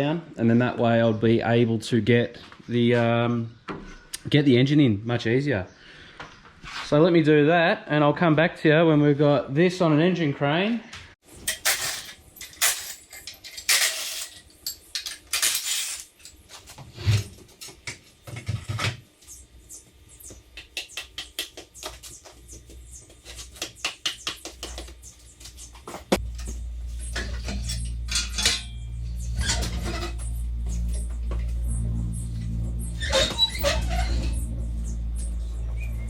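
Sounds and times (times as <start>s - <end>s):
metal tools clanking: 11.4s - 16.4s, 26.2s - 31.2s
steady low hum: 17.2s - 36.0s.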